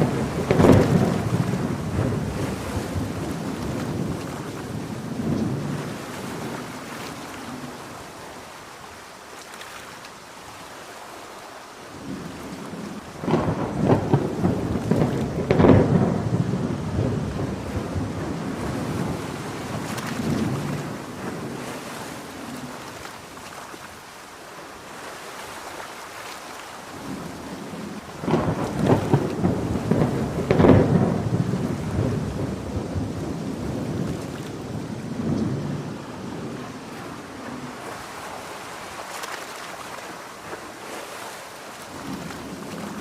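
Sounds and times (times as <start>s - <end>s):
loud thunderclap: 0.0s - 6.0s, 13.2s - 21.6s, 27.1s - 37.3s
thunder rolling: 0.0s - 6.8s, 12.0s - 22.0s, 27.0s - 38.3s
heavy rain: 0.0s - 43.0s.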